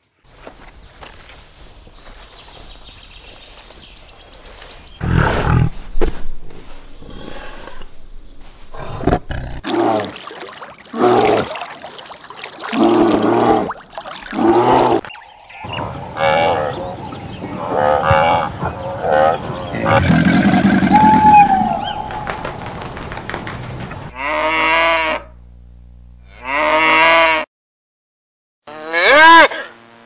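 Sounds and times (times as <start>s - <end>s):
wavering animal calls: 9.6s - 22.8s
tiger roaring: 16.1s - 21.8s.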